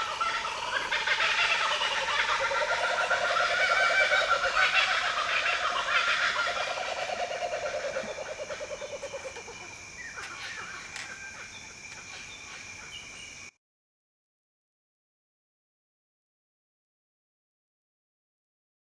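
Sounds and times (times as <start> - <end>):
bird chattering call: 0.0 - 11.6
steady high-pitched whine: 0.0 - 13.5.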